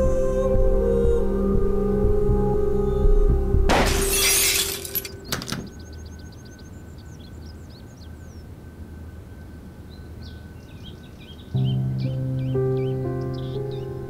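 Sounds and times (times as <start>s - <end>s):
faint steady hum: 0.0s - 14.0s
small birds chirping: 5.2s - 8.6s, 9.8s - 14.0s.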